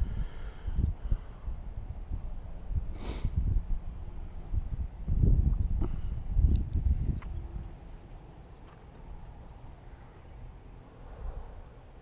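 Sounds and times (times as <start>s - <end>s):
wind buffeting microphone: 0.0s - 9.5s
faint steady hiss: 0.0s - 12.0s.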